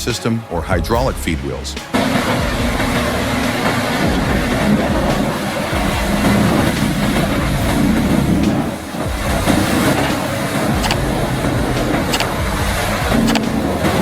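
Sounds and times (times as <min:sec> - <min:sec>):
sharp wood cracks: 0:10.8 - 0:11.1.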